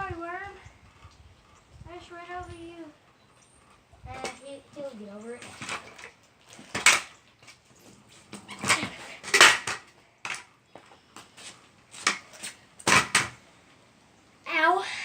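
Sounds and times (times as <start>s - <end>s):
scooter clattering on ground: 5.4s - 10.5s, 11.9s - 13.4s.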